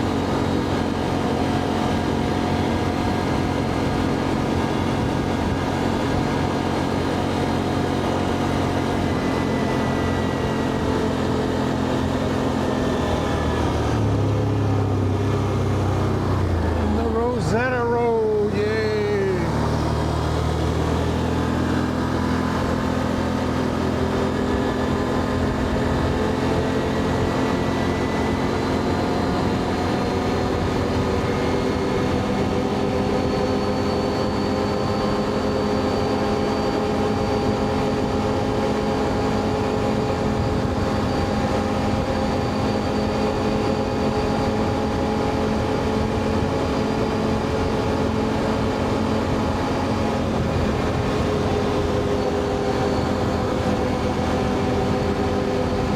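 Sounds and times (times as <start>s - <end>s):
atv engine running: 0.0s - 55.9s.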